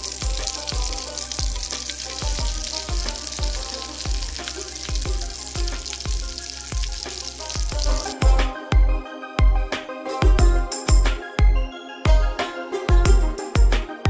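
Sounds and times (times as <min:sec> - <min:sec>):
food sizzling in hot oil: 0:00.0 - 0:08.4
music with a steady beat: 0:00.0 - 0:14.0.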